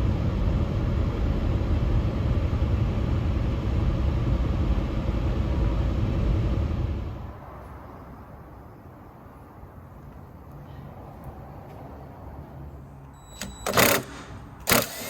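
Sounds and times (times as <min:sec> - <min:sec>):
car engine noise: 0:00.0 - 0:08.3
road and tyre rumble: 0:00.0 - 0:14.9.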